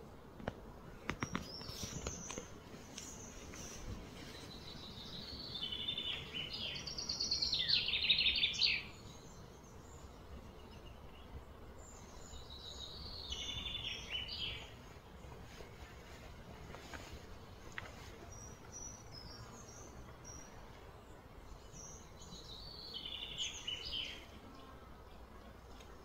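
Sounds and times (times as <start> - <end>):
songbird chirping and trilling: 1.1 - 15.2, 16.8 - 26.0.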